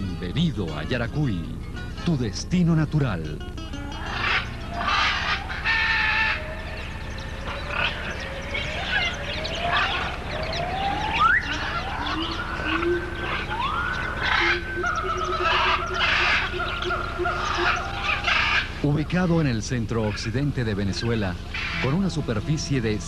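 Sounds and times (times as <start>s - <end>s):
harsh bird cackling: 3.4s - 19.4s, 20.9s - 23.0s
rising bird calls: 3.5s - 23.0s.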